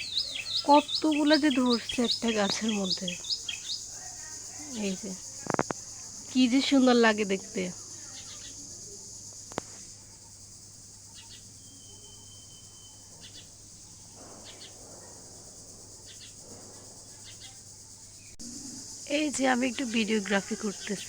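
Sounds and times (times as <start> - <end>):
high-pitched hiss: 0.0 - 21.0
small birds chirping: 0.0 - 21.0.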